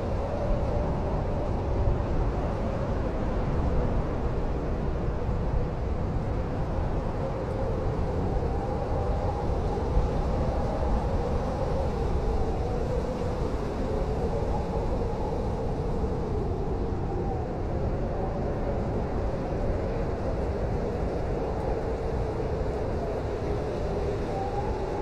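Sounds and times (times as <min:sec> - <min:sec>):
blizzard wind rumbling: 0:00.0 - 0:25.0
faint wind howling: 0:00.0 - 0:25.0.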